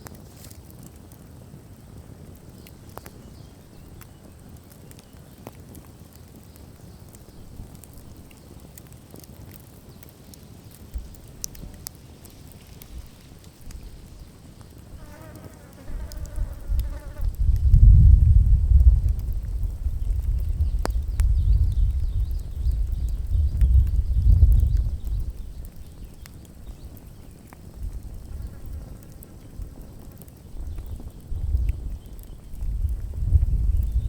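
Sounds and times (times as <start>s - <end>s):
campfire crackling: 0.0s - 34.0s.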